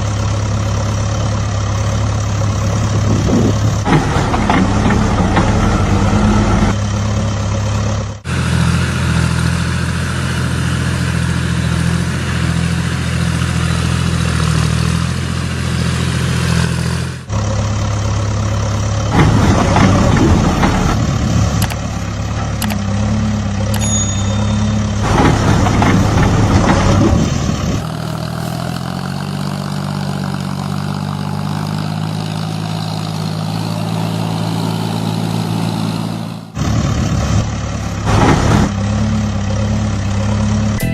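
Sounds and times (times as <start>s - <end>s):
tractor engine idling: 0.0s - 40.9s.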